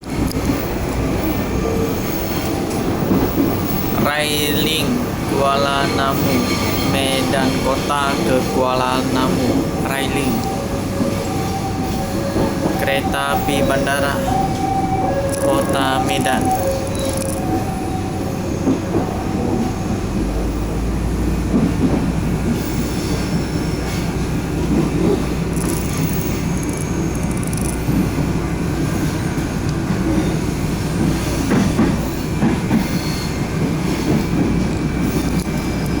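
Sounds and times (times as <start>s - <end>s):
train wheels rumbling on track: 0.0s - 36.0s
short high-pitched tones: 15.2s - 17.7s.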